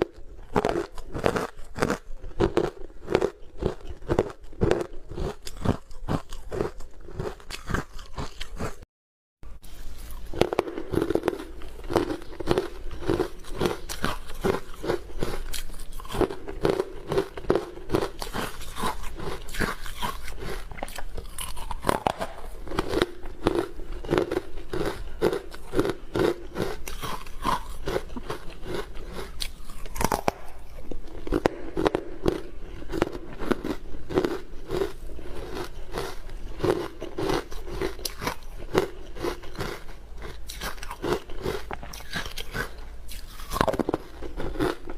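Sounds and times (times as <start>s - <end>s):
crunchy chewing of frozen ice: 0.0s - 8.8s, 9.5s - 44.9s.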